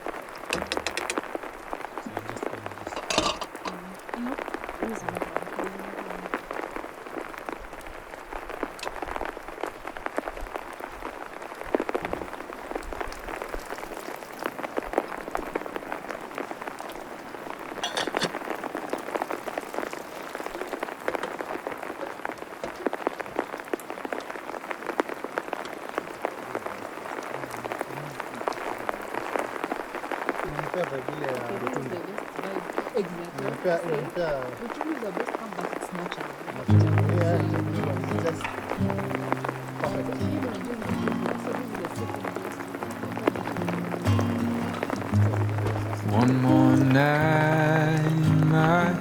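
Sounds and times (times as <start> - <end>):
rain pattering: 0.0 - 49.0
loud water drips: 12.6 - 31.1, 35.3 - 49.0.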